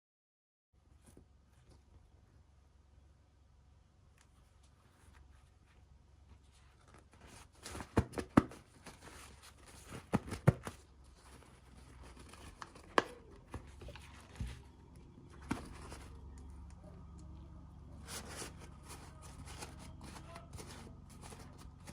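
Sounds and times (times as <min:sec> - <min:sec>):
packaging crinkling: 0:06.6 - 0:16.7, 0:18.0 - 0:21.9.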